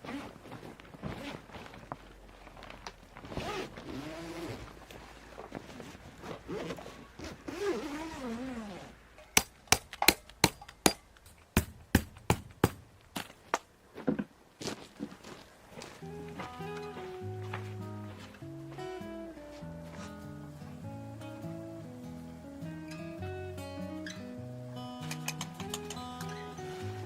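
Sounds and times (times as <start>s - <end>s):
sharp knocks: 9.4s - 12.9s.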